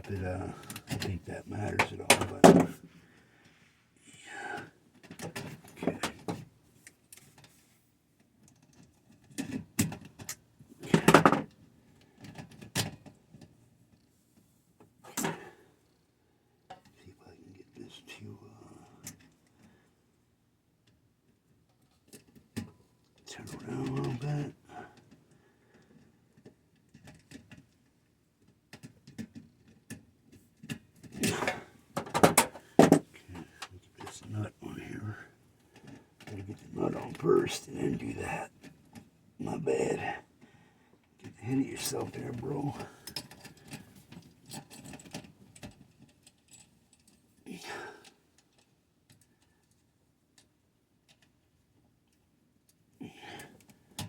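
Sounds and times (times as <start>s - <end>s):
small metal parts and tools rattling: 30.6s - 34.1s, 42.7s - 47.4s.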